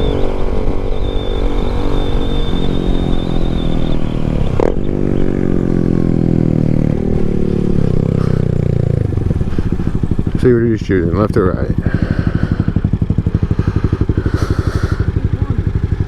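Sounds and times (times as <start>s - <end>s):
motorcycle engine running: 0.0s - 16.0s
wind rumble: 0.0s - 16.0s.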